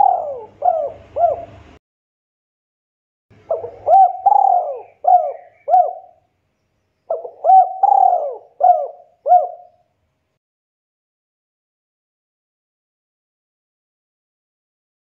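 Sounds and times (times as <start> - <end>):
dove cooing: 0.0 - 1.7, 3.4 - 6.2, 7.1 - 9.8.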